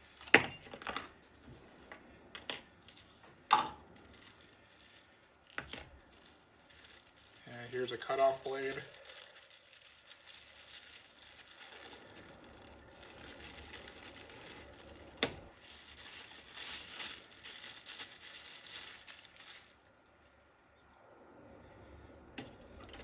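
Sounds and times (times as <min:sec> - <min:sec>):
packaging crinkling and rustling: 0:02.8 - 0:20.5.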